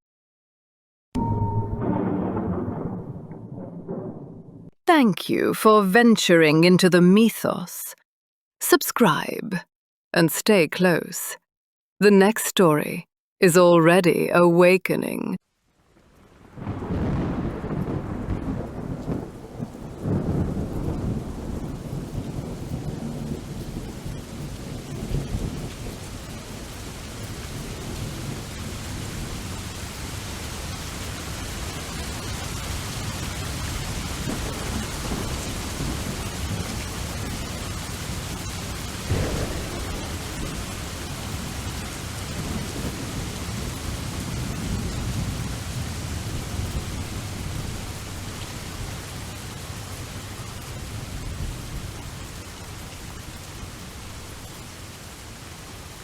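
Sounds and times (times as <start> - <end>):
sharp thunderclap: 1.2 - 4.8, 16.5 - 26.0, 34.2 - 47.8
thunder rumbling: 1.2 - 4.8, 16.3 - 29.5, 33.2 - 49.8
steady rain: 15.4 - 56.0.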